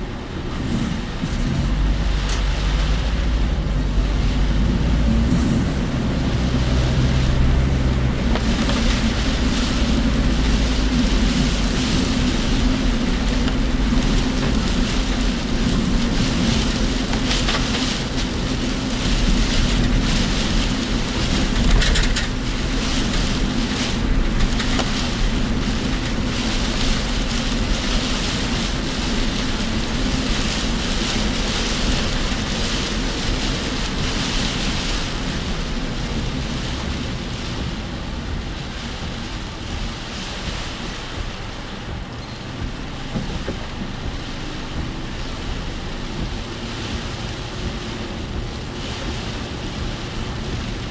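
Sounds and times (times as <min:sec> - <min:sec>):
rain on car body: 0:00.0 - 0:50.9
tyres rushing on wet road: 0:00.0 - 0:50.9
wind: 0:00.0 - 0:50.9.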